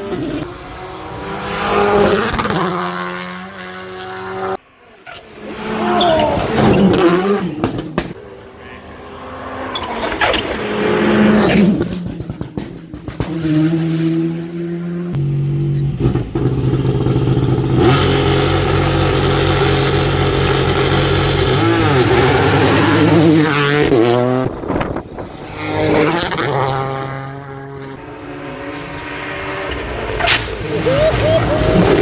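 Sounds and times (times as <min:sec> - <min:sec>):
rally car engine revving: 0:00.0 - 0:32.0.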